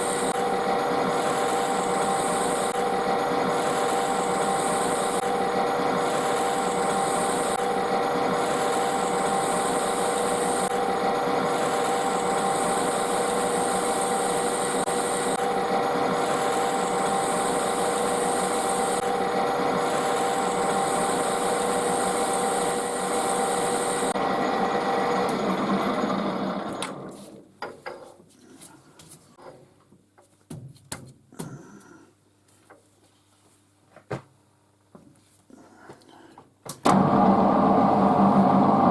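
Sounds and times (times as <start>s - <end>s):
metal lathe running: 0.0s - 27.1s, 36.9s - 38.9s.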